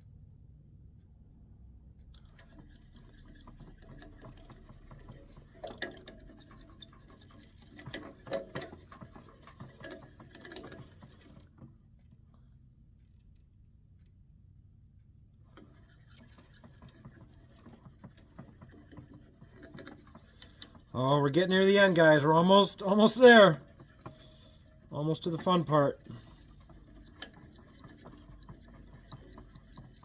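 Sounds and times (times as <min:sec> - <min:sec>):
sharp clicks and knocks: 0:02.2 - 0:11.8, 0:15.5 - 0:24.6
scratchy rubbing on wood: 0:15.7 - 0:21.2, 0:22.8 - 0:30.0.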